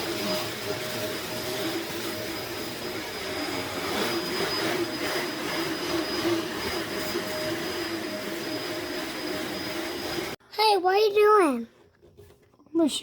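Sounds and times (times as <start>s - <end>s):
vacuum cleaner running: 0.0s - 10.4s.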